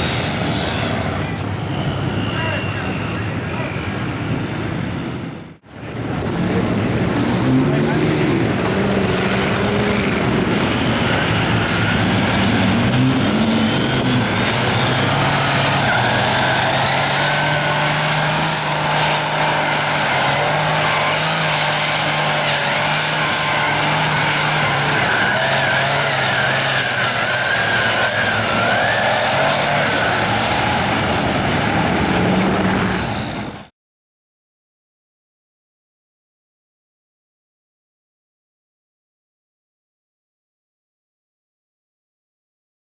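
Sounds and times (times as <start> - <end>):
truck engine revving high: 0.0 - 3.1, 5.6 - 33.7.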